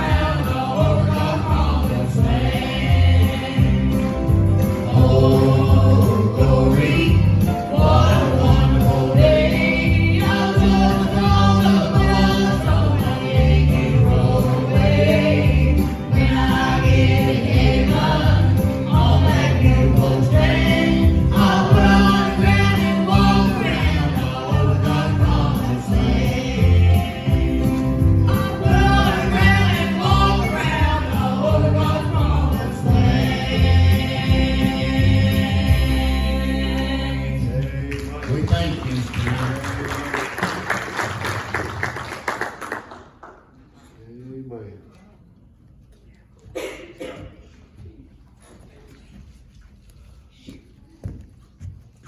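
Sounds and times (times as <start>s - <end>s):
steady bass line: 0.0s - 37.6s
gospel group singing in harmony: 0.0s - 38.8s.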